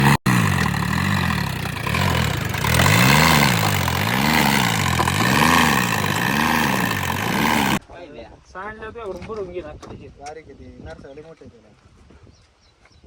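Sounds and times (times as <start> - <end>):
diesel engine running: 0.0 - 7.8.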